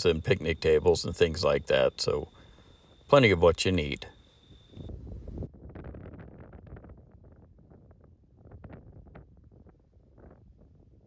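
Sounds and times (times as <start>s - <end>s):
wind buffeting microphone: 4.4s - 11.0s.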